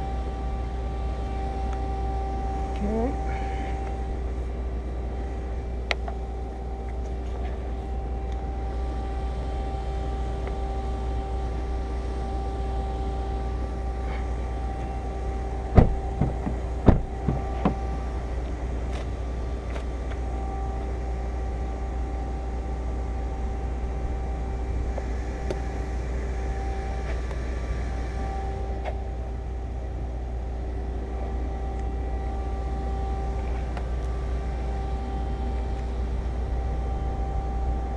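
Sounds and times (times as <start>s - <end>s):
motor humming: 0.0s - 22.2s
sharp knocks: 15.8s - 17.8s.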